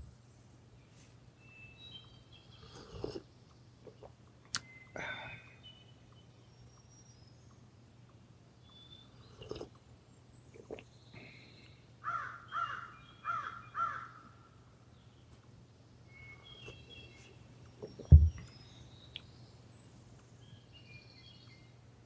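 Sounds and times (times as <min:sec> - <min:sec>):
bird calling: 0:12.0 - 0:14.4
low thump: 0:18.1 - 0:18.5.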